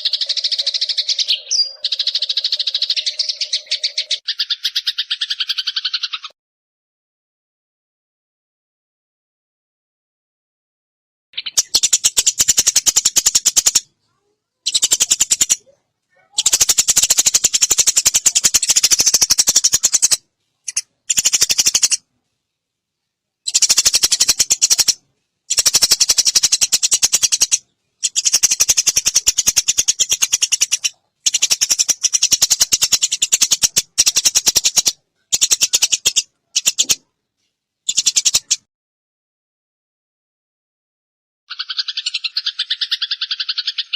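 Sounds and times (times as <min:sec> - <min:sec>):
songbird rattling trills: 0:00.0 - 0:06.3, 0:11.4 - 0:13.8, 0:14.7 - 0:15.6, 0:16.3 - 0:22.0, 0:23.4 - 0:37.0, 0:37.9 - 0:38.6, 0:41.5 - 0:43.9.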